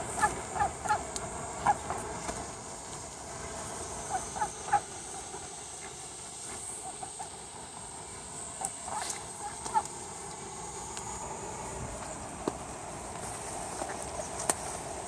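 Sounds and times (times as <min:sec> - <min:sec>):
ducks quacking: 0:00.0 - 0:02.1, 0:04.0 - 0:05.4, 0:08.6 - 0:09.9
rain hissing: 0:00.0 - 0:15.0.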